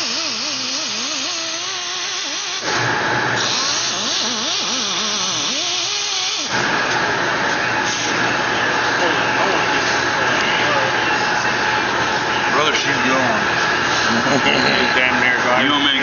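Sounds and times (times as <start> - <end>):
angle grinder grinding: 0.0 - 7.0.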